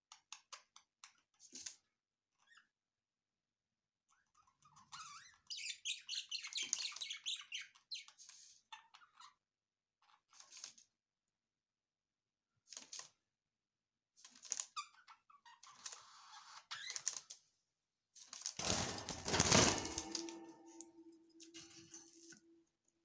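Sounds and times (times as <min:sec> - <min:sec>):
rustling: 0:18.6 - 0:22.2.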